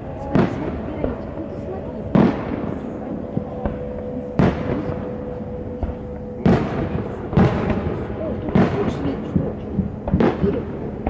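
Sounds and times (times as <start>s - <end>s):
firework shells booming: 0.0s - 11.0s.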